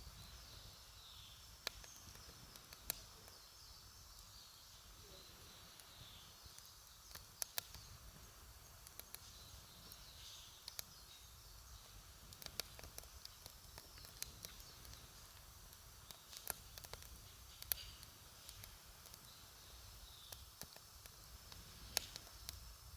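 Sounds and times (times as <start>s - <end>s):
faint outdoor hush: 0.0s - 22.9s
campfire crackling and popping: 1.4s - 3.5s, 5.8s - 22.9s.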